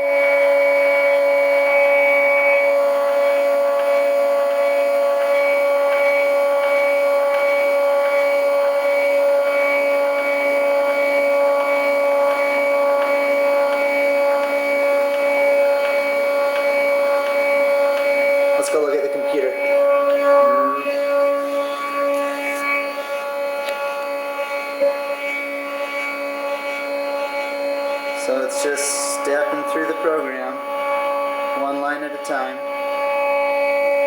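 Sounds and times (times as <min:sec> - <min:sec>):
stepper motors whining: 0:00.0 - 0:34.0.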